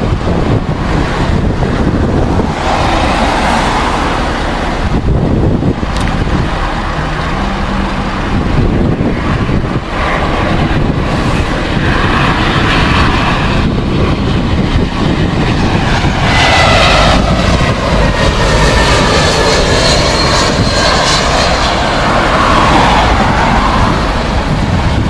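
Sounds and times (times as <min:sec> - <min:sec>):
jet engines rumbling: 0:00.0 - 0:25.0
whining engine tone: 0:00.0 - 0:25.0
wind noise on microphone: 0:00.0 - 0:25.0.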